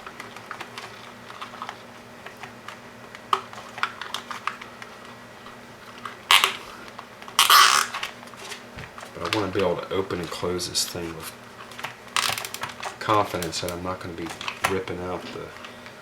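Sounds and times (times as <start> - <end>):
zip ties pulled tight: 7.4 - 8.0.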